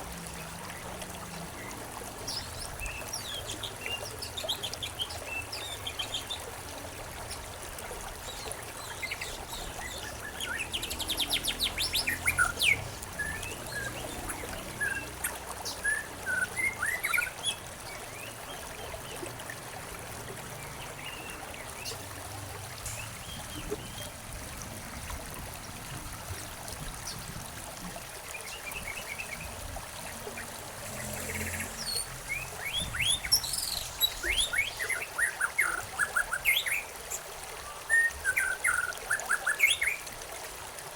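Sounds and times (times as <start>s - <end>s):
songbirds chirping and trilling: 8.2s - 19.6s, 28.2s - 40.0s
soft hiss of running water: 17.4s - 38.4s.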